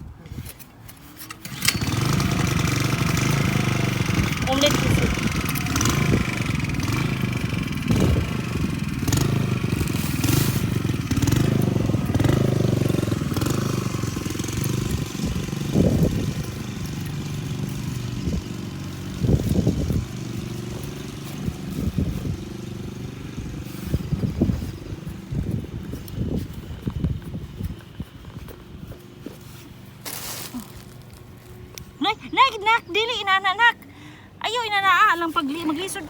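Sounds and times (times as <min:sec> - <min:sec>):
small engine running: 0:01.0 - 0:32.3.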